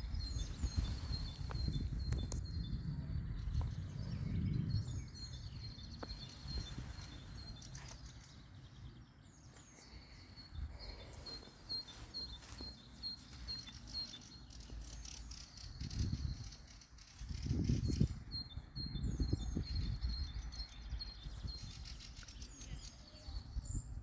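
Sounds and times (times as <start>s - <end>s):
low outdoor rumble: 0.0s - 15.1s
birds chirping and singing: 0.0s - 24.0s.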